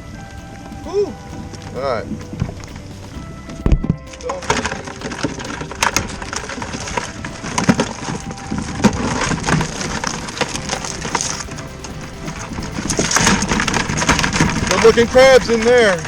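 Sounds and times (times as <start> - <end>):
crabs and wire pot clattering: 9.1 - 16.0.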